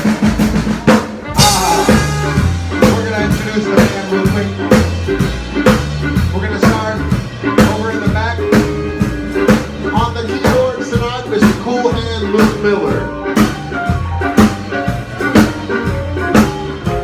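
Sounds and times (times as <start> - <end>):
drum kit beat: 0.0 - 17.0
swing band playing: 0.0 - 17.0.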